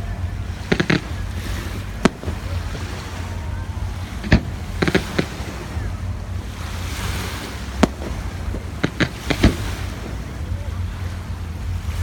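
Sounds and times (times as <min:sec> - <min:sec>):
fireworks bangs: 0:00.0 - 0:10.6
wind rumble on microphone: 0:00.0 - 0:12.0.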